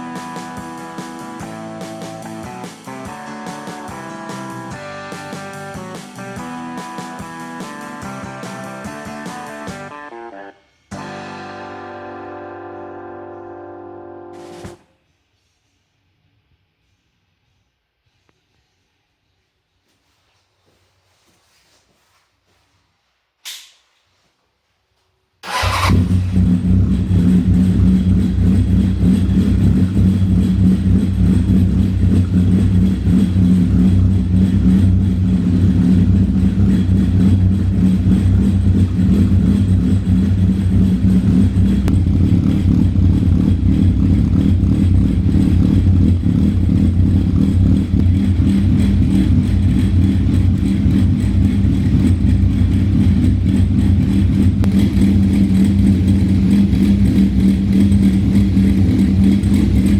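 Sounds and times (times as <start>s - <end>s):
motorcycle engine idling: 25.4s - 59.9s.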